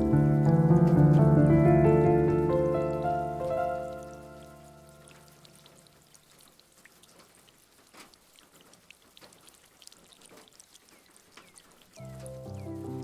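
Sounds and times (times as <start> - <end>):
piano music: 0.0 - 5.7, 12.0 - 13.0
soft rain patter: 0.0 - 13.0.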